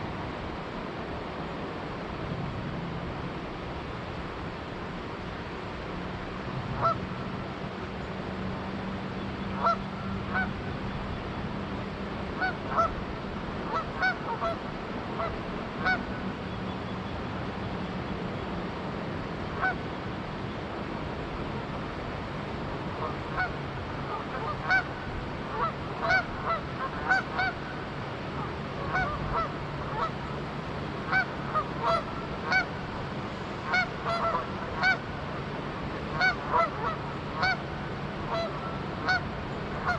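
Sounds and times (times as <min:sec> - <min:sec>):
flowing river water: 0:00.0 - 0:39.9
geese honking: 0:06.8 - 0:07.0, 0:09.6 - 0:10.6, 0:12.4 - 0:13.0, 0:13.7 - 0:14.6, 0:15.2 - 0:16.1, 0:23.0 - 0:27.7, 0:28.4 - 0:30.2, 0:31.1 - 0:32.7, 0:33.6 - 0:35.1, 0:36.1 - 0:39.9.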